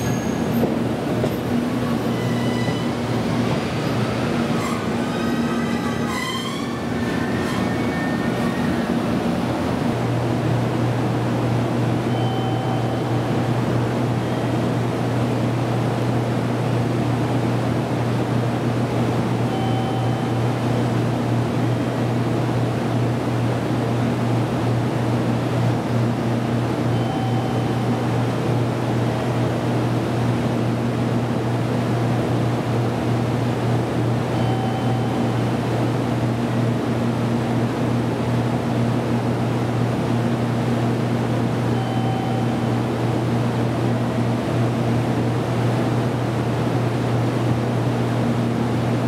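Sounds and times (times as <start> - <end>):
train equipment hum: 0.0 - 49.0
faint short beep: 12.1 - 13.2, 19.5 - 20.5, 26.9 - 27.9, 34.4 - 35.4, 41.7 - 42.7.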